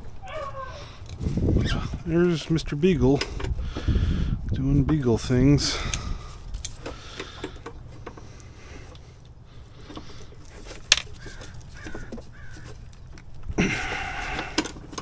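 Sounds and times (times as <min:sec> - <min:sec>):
faint clicks and knocks: 0:05.9 - 0:15.0.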